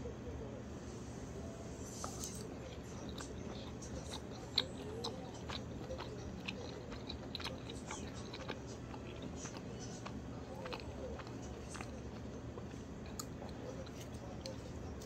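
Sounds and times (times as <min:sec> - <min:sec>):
wet chewing clicks and smacks: 0:02.0 - 0:15.0.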